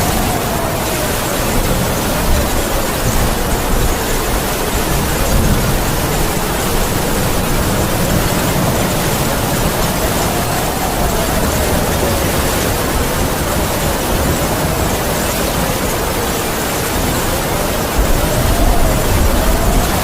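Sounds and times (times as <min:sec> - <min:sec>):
heavy rain falling: 0:00.0 - 0:20.0
howling wind: 0:00.0 - 0:20.0.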